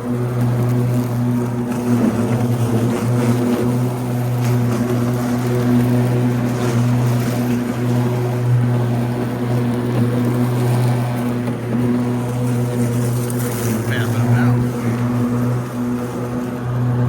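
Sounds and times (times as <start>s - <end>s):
riding mower humming: 0.0s - 17.0s.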